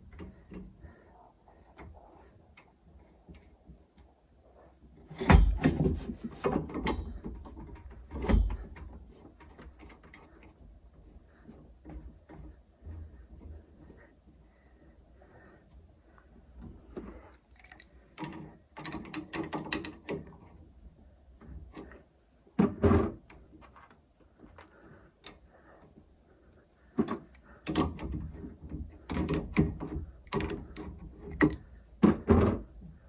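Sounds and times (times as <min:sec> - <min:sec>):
handling knocks and clatter: 0:05.0 - 0:14.0, 0:26.9 - 0:33.0.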